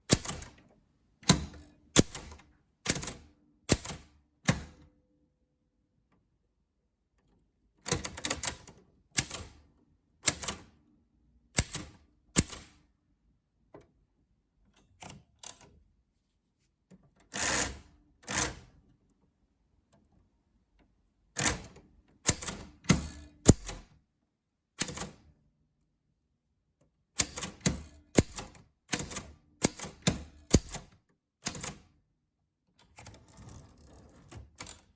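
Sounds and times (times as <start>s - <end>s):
typewriter keys striking: 23.5s - 23.8s, 27.2s - 31.8s.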